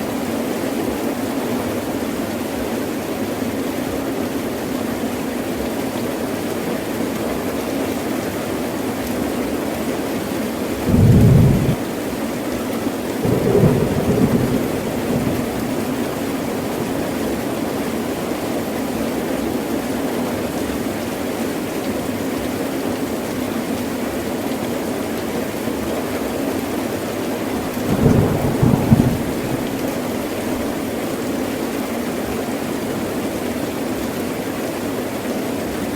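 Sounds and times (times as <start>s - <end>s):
heavy rain falling: 0.2s - 35.9s
thunder rumbling: 10.8s - 11.9s, 13.2s - 18.0s, 27.6s - 30.8s.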